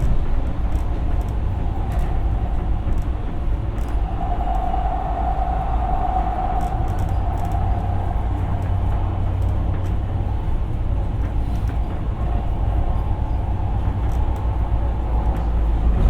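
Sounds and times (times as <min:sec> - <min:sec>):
wheels rumbling on rail: 0:00.0 - 0:16.0
high whine: 0:01.0 - 0:16.0.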